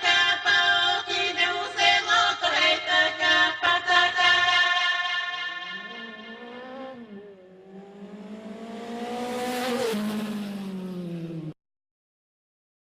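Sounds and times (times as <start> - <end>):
motorcycle engine passing: 5.5 - 11.6.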